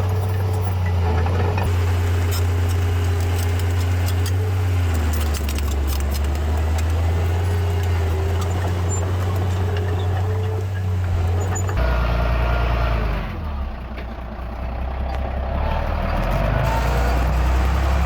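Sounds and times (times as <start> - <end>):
diesel engine running: 0.0 - 18.0
metallic clinking and rattling: 1.7 - 11.8.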